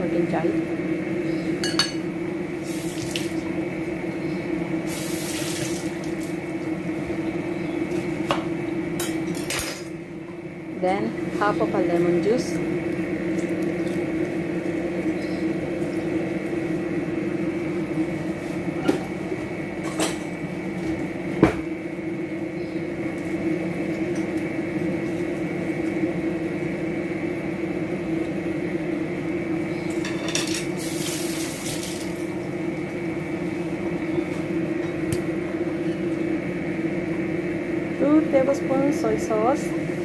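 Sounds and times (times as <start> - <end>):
steady background hum: 0.0 - 40.0
utensils and dishes clinking: 29.9 - 30.7.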